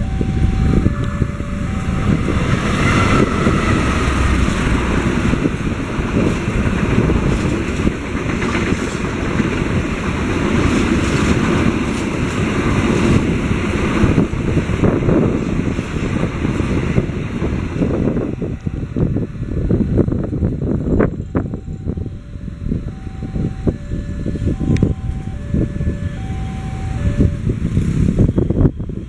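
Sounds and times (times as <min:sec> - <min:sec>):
level crossing warning tones: 0:00.0 - 0:05.6, 0:17.9 - 0:27.6
train wheels rumbling over rails: 0:00.0 - 0:29.0
wind buffeting microphone: 0:00.0 - 0:29.0.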